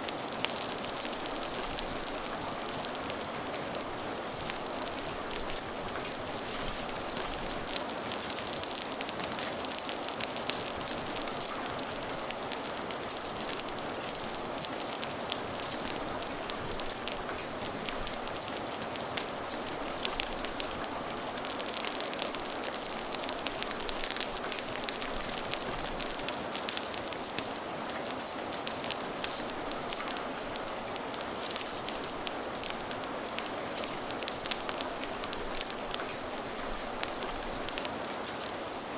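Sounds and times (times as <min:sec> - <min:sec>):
steady rain: 0:00.0 - 0:38.9
wood fire crackling: 0:00.0 - 0:38.9.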